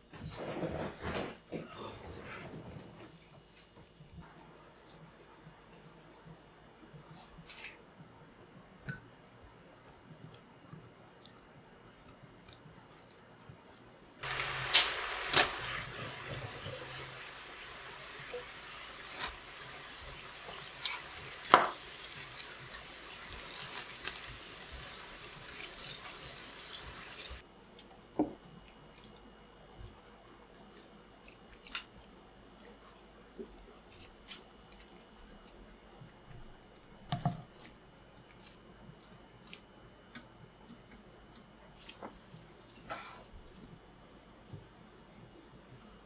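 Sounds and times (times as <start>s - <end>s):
tap running into a sink: 14.2s - 17.2s.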